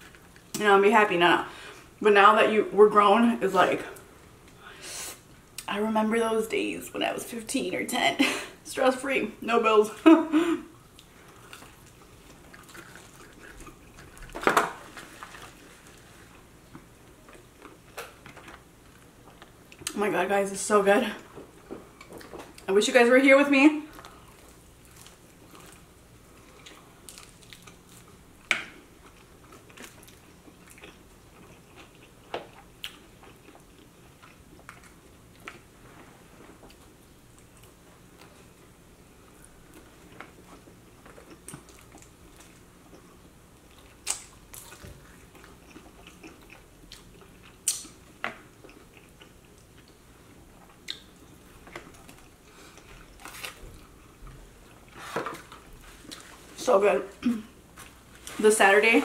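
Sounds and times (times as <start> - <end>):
people chewing: 10.4 - 19.9, 23.9 - 56.5.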